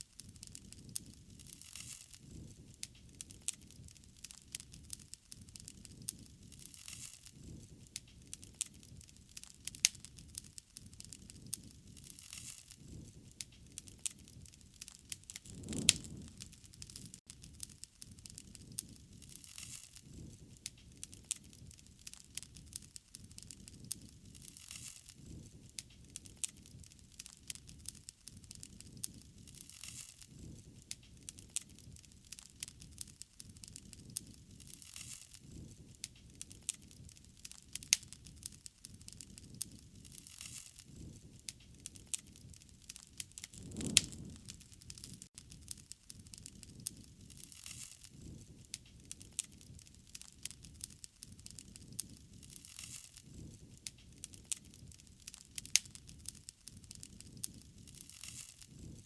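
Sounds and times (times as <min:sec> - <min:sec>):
wood fire crackling: 0:00.0 - 0:59.0
low rush of flames: 0:00.2 - 0:59.0.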